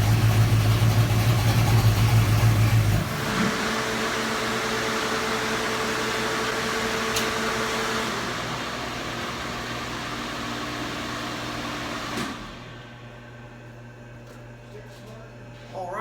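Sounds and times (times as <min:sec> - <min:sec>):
ventilation fans humming: 0:12.6 - 0:16.0.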